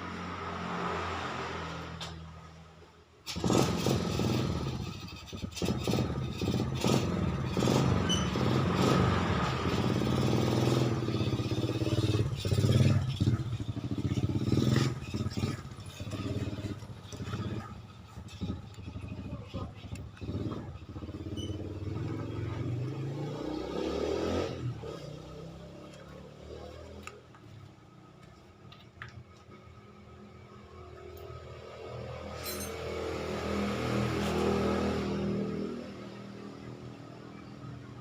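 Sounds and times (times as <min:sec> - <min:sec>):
two-stroke motorcycle engine running: 0:03.3 - 0:22.8.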